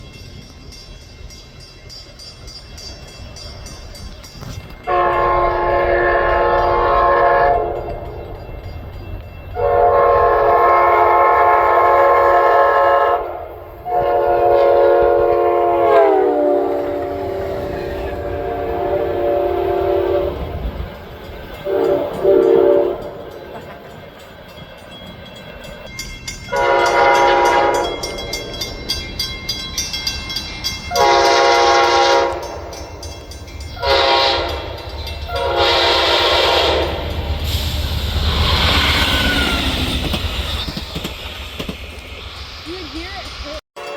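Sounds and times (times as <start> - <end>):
passing train rumble: 0.0 - 43.9
train air horn blasts: 4.9 - 8.0, 9.6 - 20.6, 21.6 - 23.4, 26.5 - 28.0, 30.9 - 32.7, 33.8 - 40.0.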